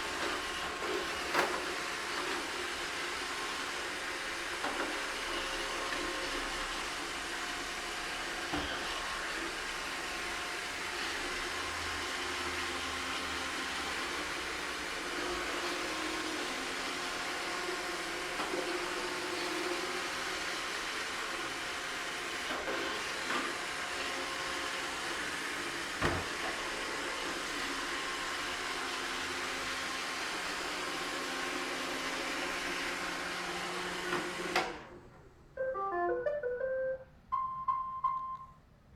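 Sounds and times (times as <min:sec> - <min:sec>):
melody of beeps: 0:35.6 - 0:38.6.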